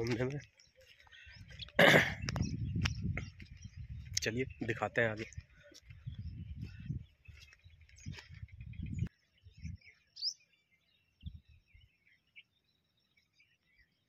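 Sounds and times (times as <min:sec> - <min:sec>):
birds chirping: 0:00.0 - 0:14.0
low rumble on the microphone: 0:01.3 - 0:09.9.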